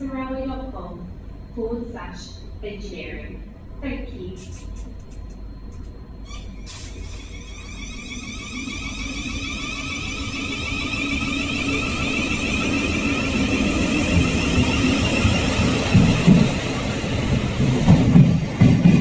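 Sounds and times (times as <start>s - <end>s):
train approaching with whine: 0.0s - 19.0s.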